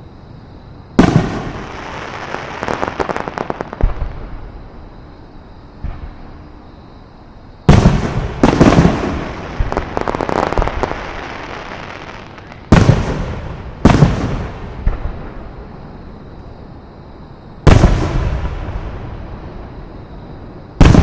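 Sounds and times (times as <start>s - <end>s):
fireworks crackling: 1.0s - 4.4s, 7.7s - 15.2s
fireworks booming: 1.0s - 4.9s, 5.8s - 6.5s, 7.7s - 15.7s, 17.6s - 19.9s, 20.8s - 21.0s.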